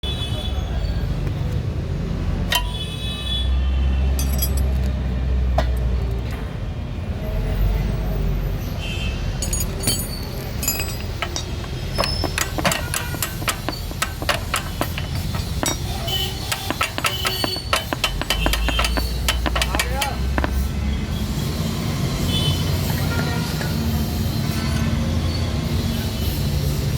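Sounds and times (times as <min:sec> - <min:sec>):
low rumble of traffic: 0:00.0 - 0:26.9
metal tools clinking and tapping: 0:02.5 - 0:02.8, 0:04.1 - 0:06.0, 0:09.4 - 0:20.6.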